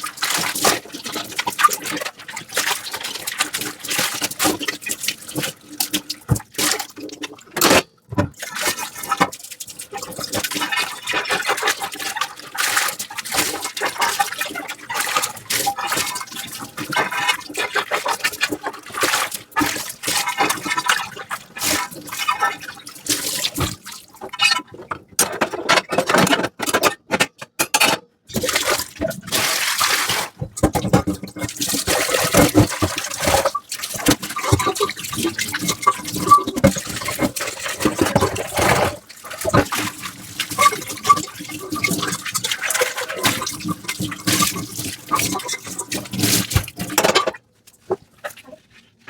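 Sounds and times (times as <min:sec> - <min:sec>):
sponge scrubbing dishes: 0:00.0 - 0:49.0
running water: 0:08.2 - 0:25.2, 0:28.3 - 0:48.8
dishes clicking and knocking: 0:23.6 - 0:28.2, 0:30.4 - 0:31.3, 0:46.6 - 0:47.4.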